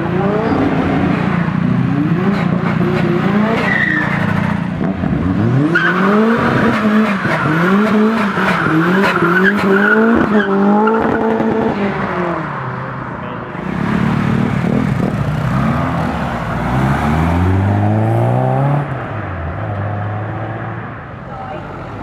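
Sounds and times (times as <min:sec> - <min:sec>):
car engine revving: 0:00.0 - 0:22.0
tyres squealing: 0:05.8 - 0:11.0.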